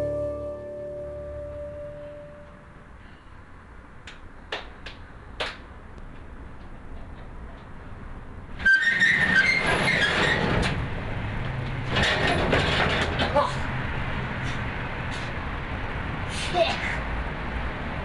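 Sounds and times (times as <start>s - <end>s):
metal roll-up door rattling: 8.6s - 11.1s, 11.8s - 13.7s
metallic clatter: 11.6s - 13.4s.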